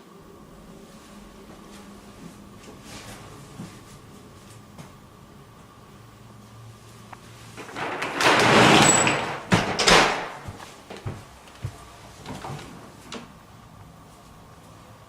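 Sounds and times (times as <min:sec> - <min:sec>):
sliding door on its track: 0:07.2 - 0:11.2
door knocks and clicks: 0:07.6 - 0:11.2.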